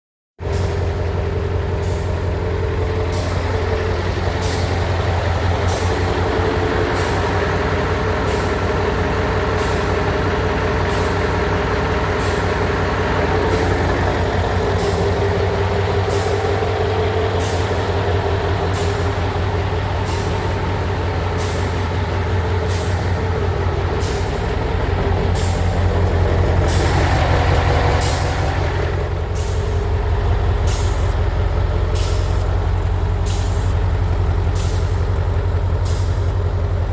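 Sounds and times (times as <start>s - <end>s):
diesel truck engine idling: 0.4s - 36.9s.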